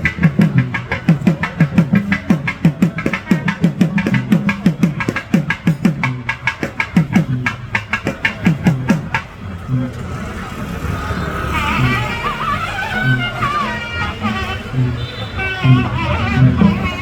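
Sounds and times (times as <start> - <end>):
fast pitched drum strokes: 0.0 - 9.9.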